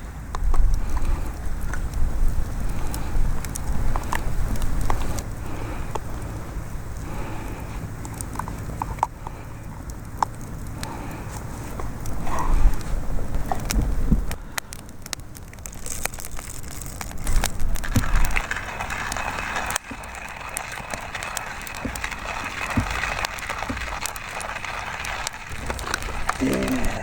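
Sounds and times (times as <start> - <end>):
wood fire crackling: 0.0 - 27.0
steady hiss: 17.1 - 27.0.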